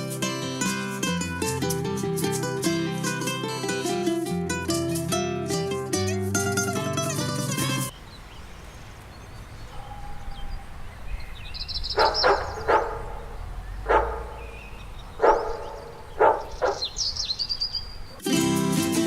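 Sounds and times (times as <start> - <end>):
faint bird chirps: 7.9 - 18.2
dog barking: 9.7 - 10.7, 12.0 - 14.5, 15.2 - 17.0.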